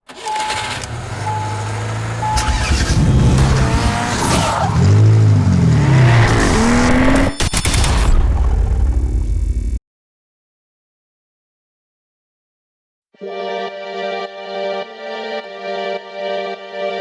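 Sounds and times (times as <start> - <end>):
racing engines revving past: 0.7 - 7.3.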